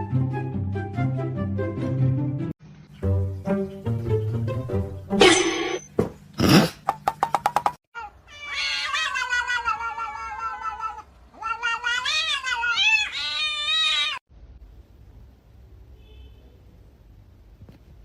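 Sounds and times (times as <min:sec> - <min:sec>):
cat yowling: 0:08.0 - 0:14.2.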